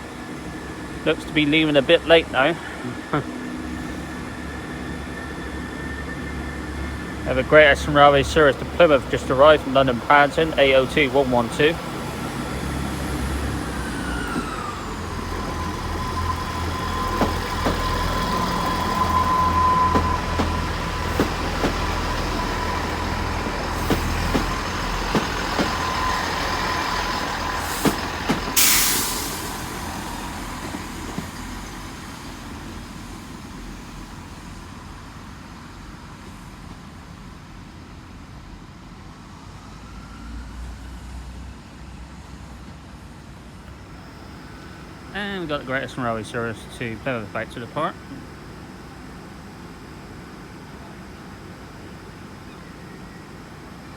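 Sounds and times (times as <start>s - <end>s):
train engines rumbling: 0.0s - 39.8s, 40.8s - 53.9s
air release hiss: 13.9s - 32.0s.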